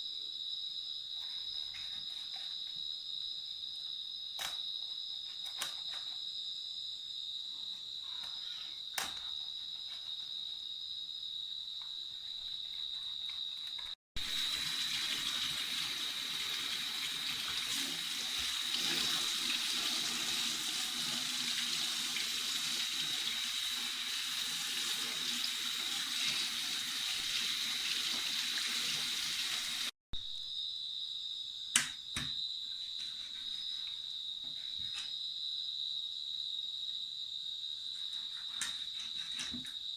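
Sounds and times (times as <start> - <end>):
crickets trilling: 0.0 - 19.4, 30.4 - 39.9
water hiss: 14.2 - 29.9.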